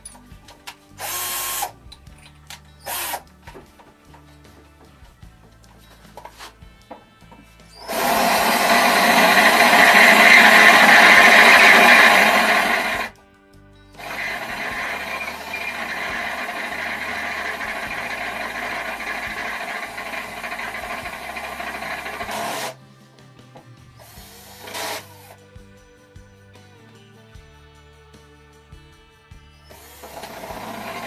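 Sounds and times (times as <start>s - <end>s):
electric drill drilling: 1.0s - 1.8s, 2.8s - 3.3s, 7.7s - 13.2s, 14.0s - 22.8s, 24.0s - 25.4s, 29.7s - 31.0s.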